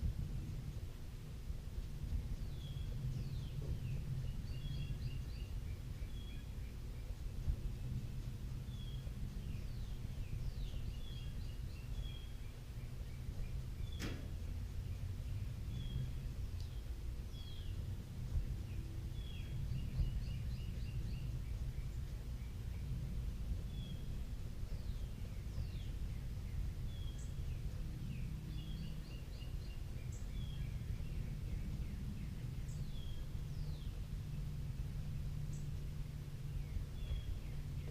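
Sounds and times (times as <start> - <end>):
low background hum: 0.0 - 37.9
low background rumble: 0.0 - 37.9
birds chirping: 0.2 - 37.9
sharp click: 13.8 - 14.4.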